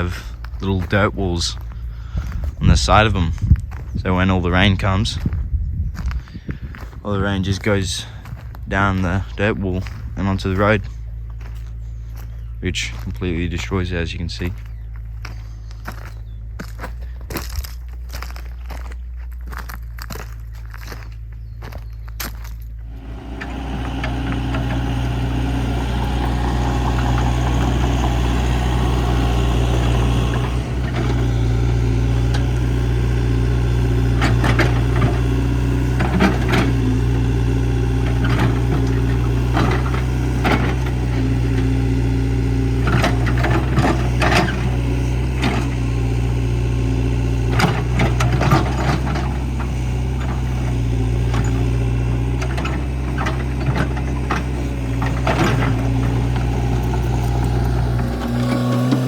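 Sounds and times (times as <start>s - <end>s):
excavator diesel engine running: 0.0s - 5.4s, 6.0s - 21.9s, 22.6s - 59.0s
excavator clanks and knocks: 22.9s - 59.0s.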